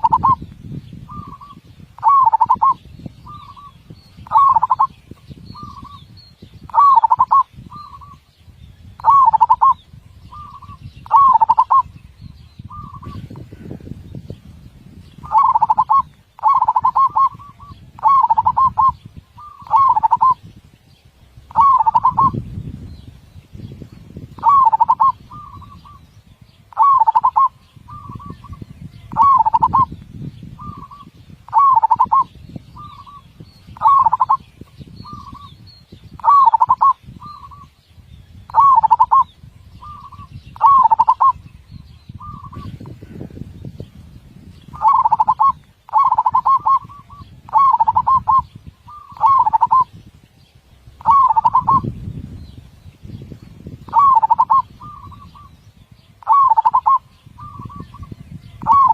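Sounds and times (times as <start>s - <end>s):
dove cooing: 0.0s - 0.4s, 1.1s - 4.9s, 6.7s - 8.2s, 9.0s - 11.9s, 12.7s - 13.7s, 15.2s - 20.4s, 21.5s - 22.4s, 24.4s - 26.0s, 26.7s - 29.9s, 30.6s - 33.2s, 33.8s - 35.5s, 36.2s - 37.7s, 38.5s - 41.4s, 44.8s - 49.9s, 51.0s - 51.9s, 53.9s - 55.6s, 56.2s - 58.9s.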